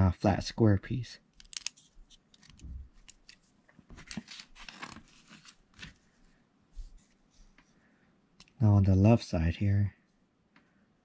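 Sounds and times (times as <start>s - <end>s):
plastic toy bricks clicking: 1.4s - 1.8s.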